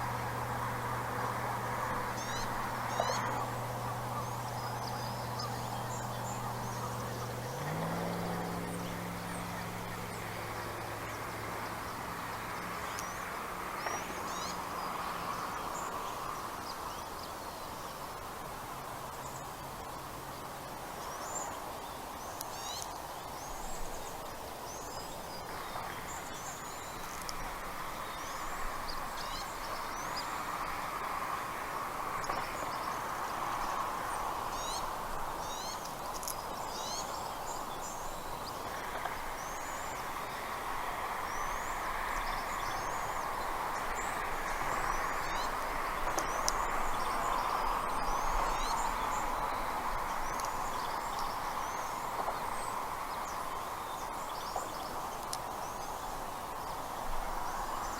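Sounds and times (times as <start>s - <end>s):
birds chirping: 0.0s - 18.2s, 32.2s - 57.9s.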